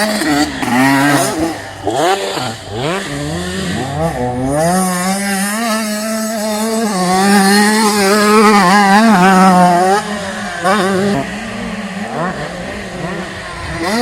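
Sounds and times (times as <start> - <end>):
motocross bike engine revving: 0.0 - 14.0.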